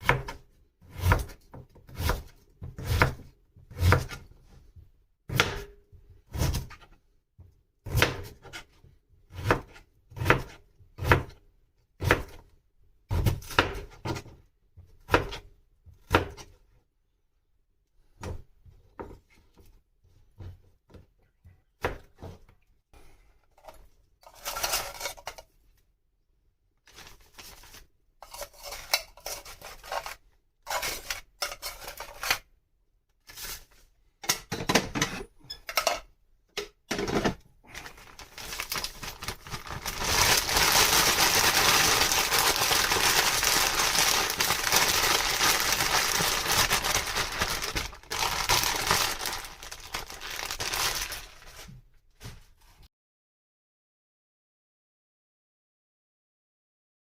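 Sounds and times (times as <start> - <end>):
knife chopping on cutting board: 0.0 - 4.2, 9.4 - 11.3
scratchy rustling: 37.7 - 51.7.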